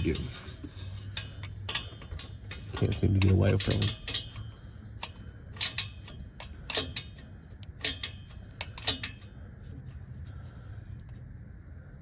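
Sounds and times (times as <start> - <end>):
low hum: 0.0 - 12.0
metallic clicks of hand tools: 1.1 - 9.3.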